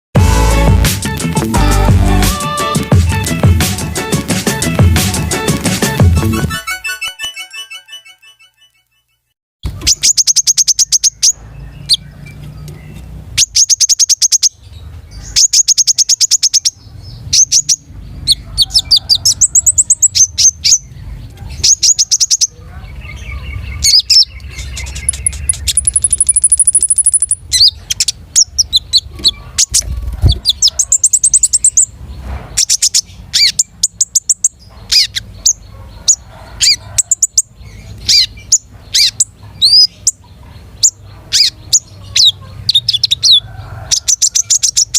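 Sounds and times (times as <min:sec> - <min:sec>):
songbird singing trills: 0:09.7 - 0:32.0, 0:32.6 - 0:44.9.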